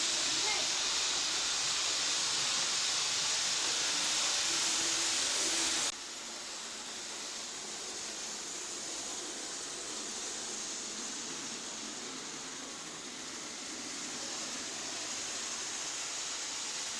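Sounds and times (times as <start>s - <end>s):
recording hiss: 0.0s - 16.9s.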